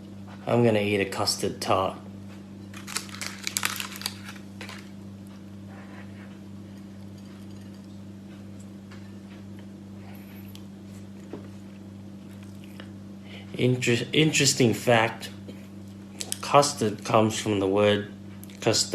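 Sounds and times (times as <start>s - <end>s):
low electrical hum: 0.0s - 18.9s
pastry crinkling and crackling: 2.6s - 5.0s.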